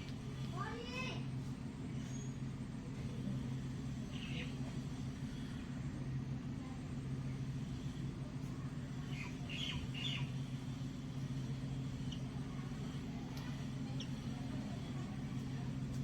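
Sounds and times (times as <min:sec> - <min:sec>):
steady low hum: 0:00.0 - 0:16.0
small bird chirping: 0:09.1 - 0:10.3.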